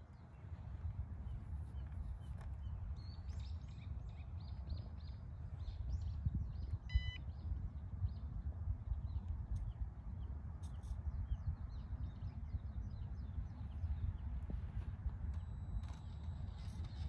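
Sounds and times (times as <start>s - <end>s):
wind buffeting microphone: 0.0s - 17.0s
short electronic beep: 6.9s - 7.2s.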